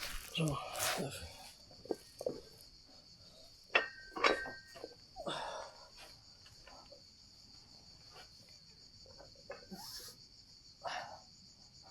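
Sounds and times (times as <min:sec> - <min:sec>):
insects chirring: 0:00.0 - 0:11.9
weight plates clinking on barbell: 0:03.7 - 0:04.9.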